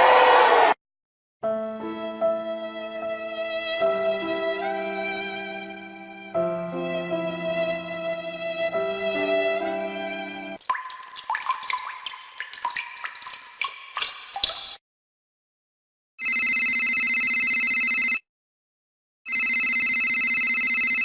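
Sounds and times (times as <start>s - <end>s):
water drops dripping: 10.6s - 14.8s
telephone ringing: 16.2s - 18.2s, 19.3s - 21.0s.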